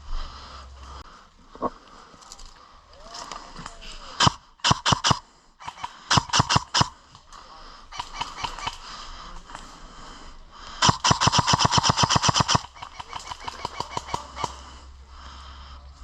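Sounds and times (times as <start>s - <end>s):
airsoft gun firing: 4.1s - 7.2s, 7.9s - 8.9s, 10.8s - 14.6s.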